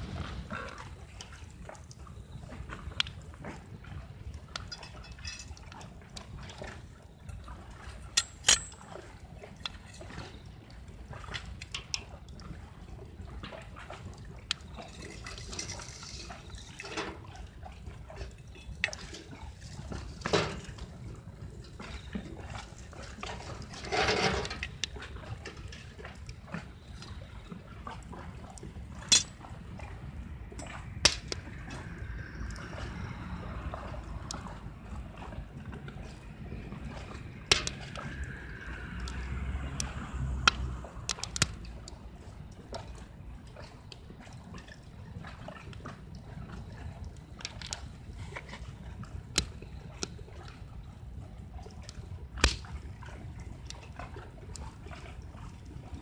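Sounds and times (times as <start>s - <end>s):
wood fire rumbling in stove: 0.0s - 56.0s
wood fire crackling: 8.1s - 8.8s, 29.0s - 29.4s, 30.9s - 31.5s, 39.0s - 41.7s, 51.9s - 52.7s
sharp pops of fire: 31.0s - 31.4s, 52.4s - 52.7s.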